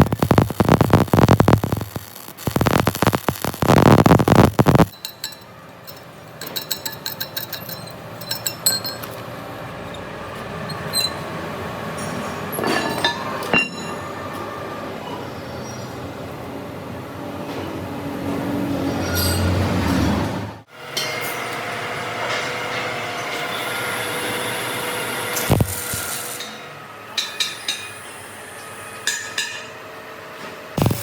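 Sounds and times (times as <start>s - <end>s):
loud burst of noise: 0.0s - 4.9s, 30.8s - 31.0s
steady machine hum: 0.0s - 15.0s
metal parts clinking: 4.9s - 10.0s
short metallic squeal: 10.7s - 11.3s.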